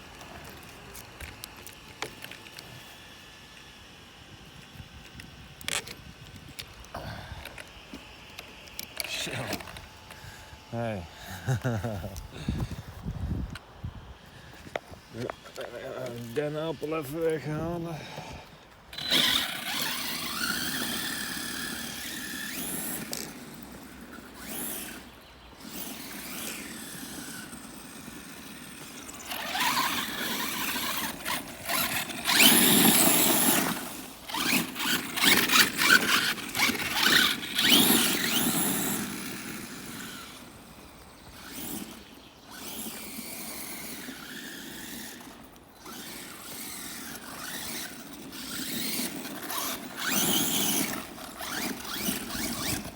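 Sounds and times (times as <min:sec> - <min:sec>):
rc car motor whining: 0:00.0 - 0:52.9.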